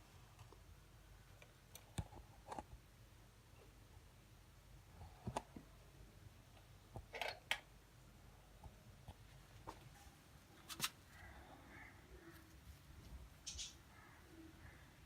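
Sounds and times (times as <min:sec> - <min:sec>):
budgies chirping softly: 0:13.3 - 0:15.0.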